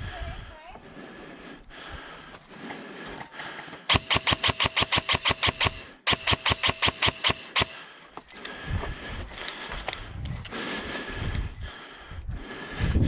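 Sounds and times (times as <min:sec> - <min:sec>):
airsoft gun rapid shots: 0:03.9 - 0:07.9.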